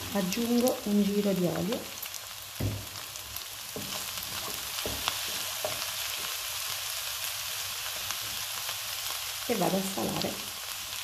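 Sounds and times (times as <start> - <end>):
food sizzling in oil: 0.0 - 11.0
wooden spatula knocking: 3.7 - 6.0.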